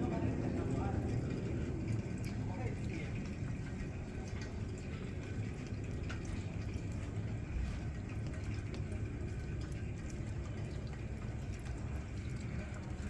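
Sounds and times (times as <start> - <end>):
faint light ticks: 5.2 - 10.2.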